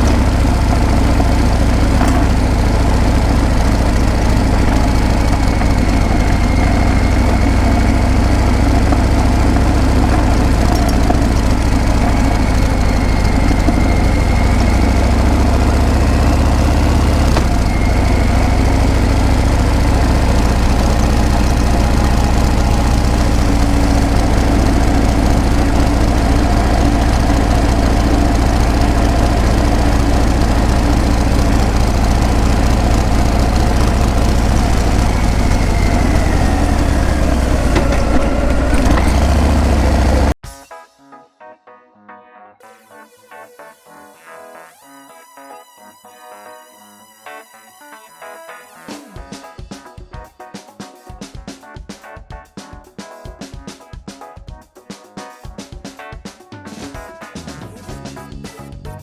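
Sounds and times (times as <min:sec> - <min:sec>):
motorcycle engine pulsing: 0:00.0 - 0:40.4.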